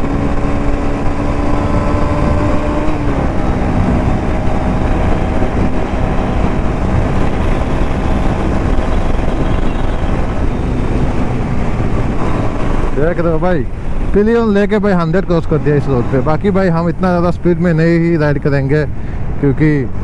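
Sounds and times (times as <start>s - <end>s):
motorcycle engine drone: 0.0s - 20.0s
wind rush on microphone: 0.0s - 20.0s.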